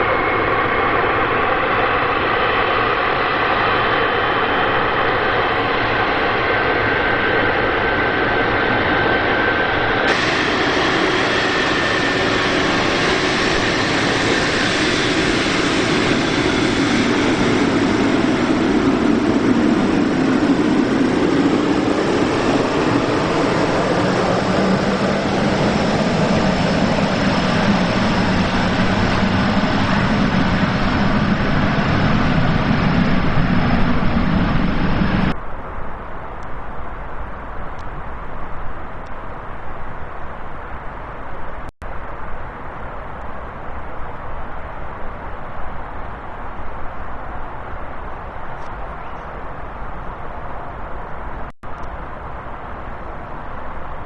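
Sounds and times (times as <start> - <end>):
jet engines whining: 0.0 - 35.4.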